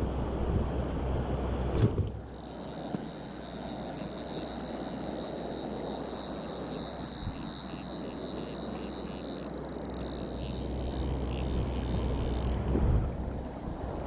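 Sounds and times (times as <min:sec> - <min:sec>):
wind rumbling on microphone: 0:00.0 - 0:14.0
thin steady high tone: 0:02.3 - 0:12.6.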